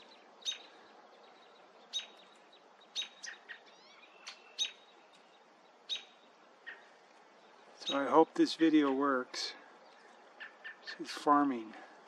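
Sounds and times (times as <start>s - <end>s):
young bird chirping: 0.0s - 8.2s, 9.8s - 11.1s.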